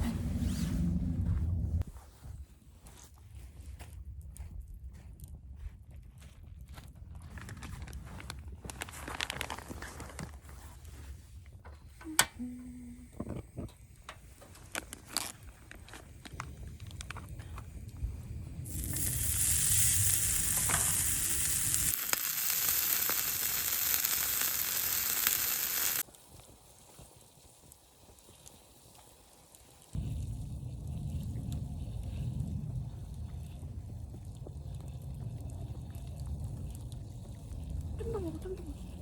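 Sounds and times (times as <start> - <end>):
food sizzling in a hot pan: 18.6 - 30.0.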